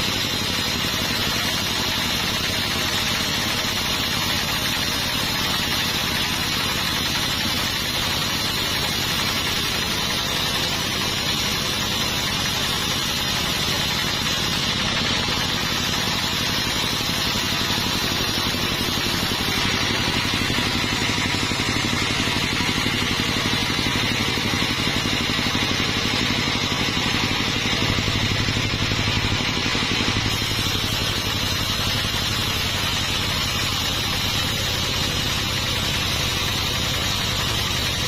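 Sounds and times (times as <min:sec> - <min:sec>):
sawmill machinery running: 0:00.0 - 0:38.0.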